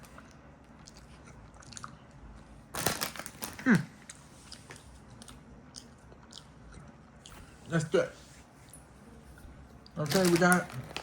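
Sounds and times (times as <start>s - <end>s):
person chewing: 0.0s - 2.6s, 3.5s - 7.6s.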